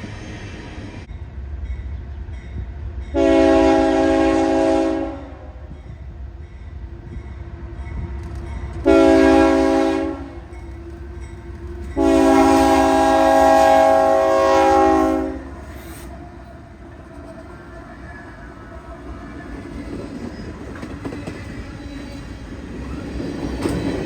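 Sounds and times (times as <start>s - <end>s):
train rumbling past: 0.0s - 24.0s
train horn blasts: 3.1s - 5.7s, 8.8s - 10.6s, 11.8s - 18.4s.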